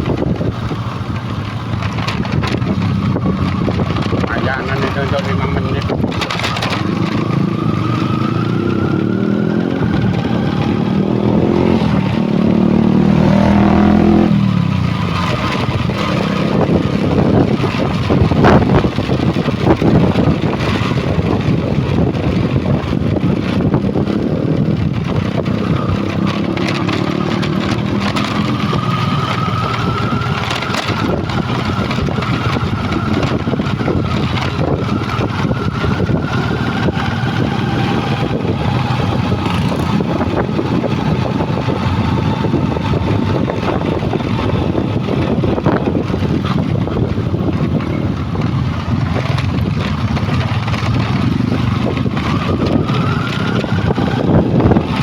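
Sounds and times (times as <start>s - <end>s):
truck engine revving: 0.0s - 55.0s.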